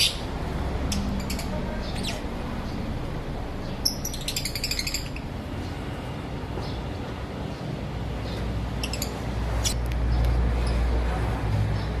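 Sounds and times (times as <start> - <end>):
lovebirds chirping: 0.0 - 10.9.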